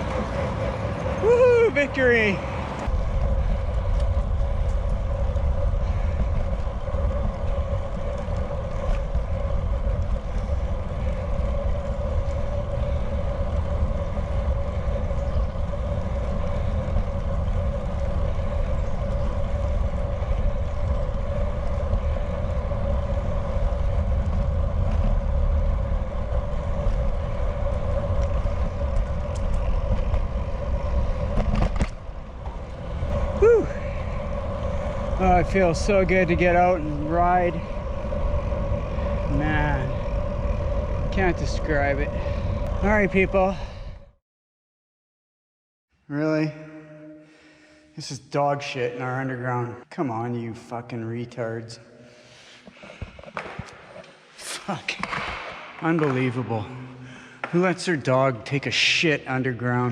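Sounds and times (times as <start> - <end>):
wind buffeting microphone: 0.0 - 44.1
constant hum: 0.0 - 44.2, 46.0 - 59.9.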